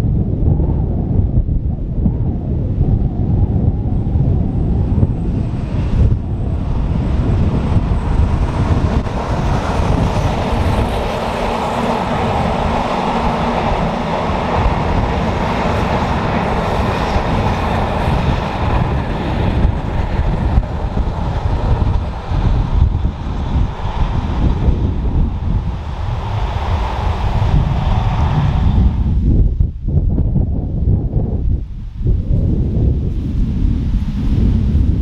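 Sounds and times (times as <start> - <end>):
wind buffeting microphone: 0.0 - 35.0
train wheels rumbling on rail: 3.5 - 29.8.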